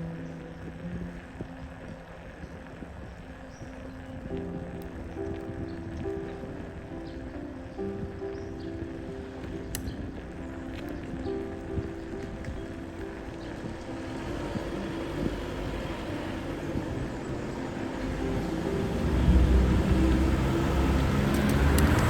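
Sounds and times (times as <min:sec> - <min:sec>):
car engine rumble: 0:00.0 - 0:22.0.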